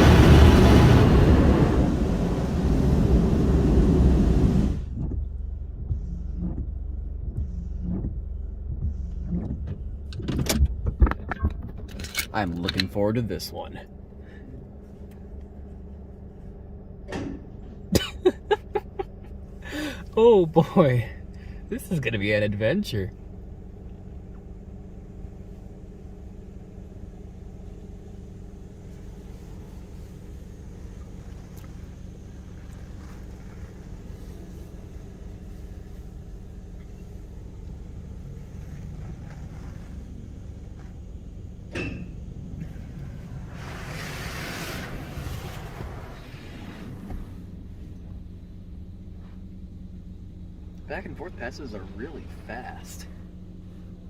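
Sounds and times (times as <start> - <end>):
car wash equipment rushing hiss: 0.0 - 5.0, 24.5 - 48.5
car engine idling: 0.0 - 54.0.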